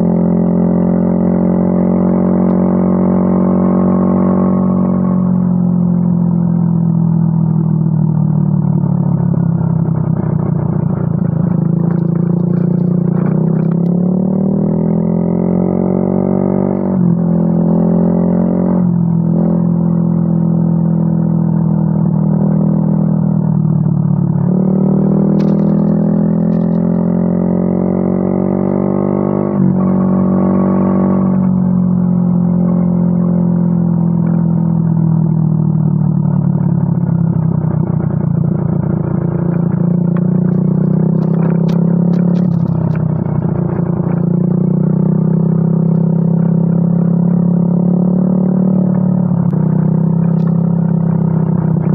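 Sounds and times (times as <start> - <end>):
scooter engine revving: 24.4 - 31.3.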